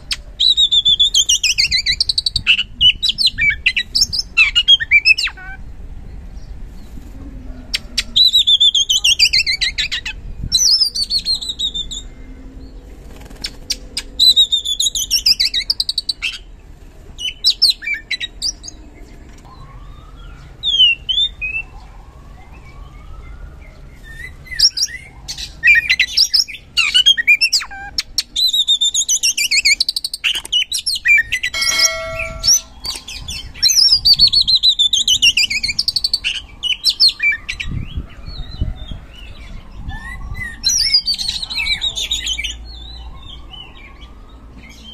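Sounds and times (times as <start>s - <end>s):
bird singing whistled song: 0.4s - 5.2s.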